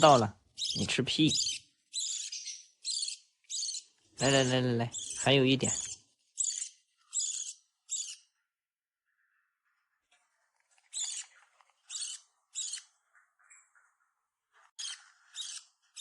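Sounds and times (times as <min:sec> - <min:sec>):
parrot chick squawking: 0:00.0 - 0:08.4, 0:11.0 - 0:13.9, 0:14.8 - 0:16.0.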